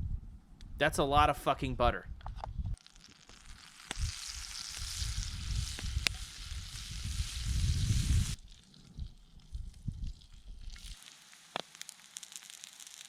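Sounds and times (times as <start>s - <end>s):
butter sizzling in a pan: 2.8s - 13.0s.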